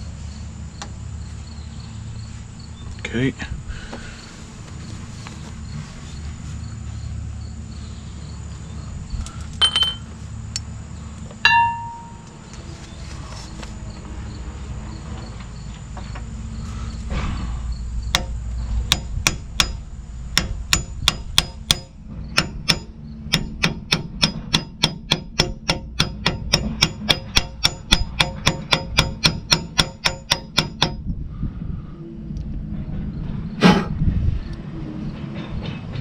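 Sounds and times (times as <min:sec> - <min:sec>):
steady low hum: 0:00.0 - 0:36.0
hammer striking metal: 0:09.6 - 0:10.1, 0:11.4 - 0:12.3, 0:18.1 - 0:31.0.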